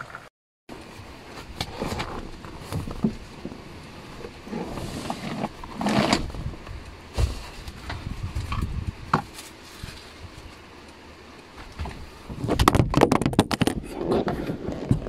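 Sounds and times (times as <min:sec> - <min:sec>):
car seat rustling shove: 0:04.2 - 0:06.6, 0:07.2 - 0:07.7.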